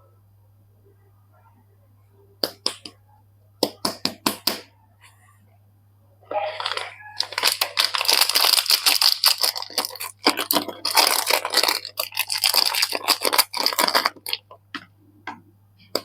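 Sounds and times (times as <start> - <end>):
packaging crinkling and tearing: 6.5 - 14.6.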